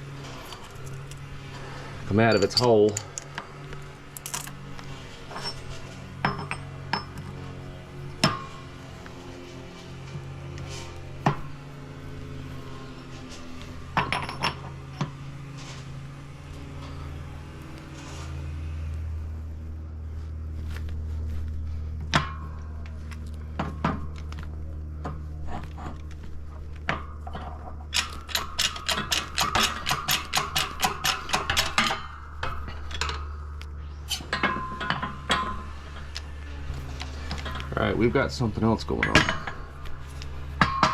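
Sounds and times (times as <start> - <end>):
metal parts clinking on workbench: 2.1 - 3.3, 14.0 - 14.7
fast metallic clicks: 27.9 - 33.2.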